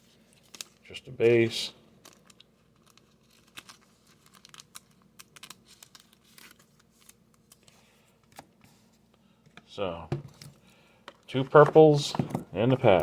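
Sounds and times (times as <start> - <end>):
foil wrapper crinkling: 2.0 - 7.8
trading cards flipped by hand: 2.0 - 8.5.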